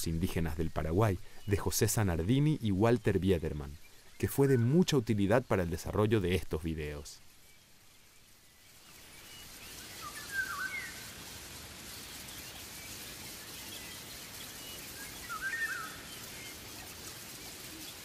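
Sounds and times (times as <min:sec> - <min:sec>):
steady outdoor hiss: 0:00.0 - 0:18.0
bird warbling calls: 0:09.0 - 0:11.2, 0:12.2 - 0:18.0.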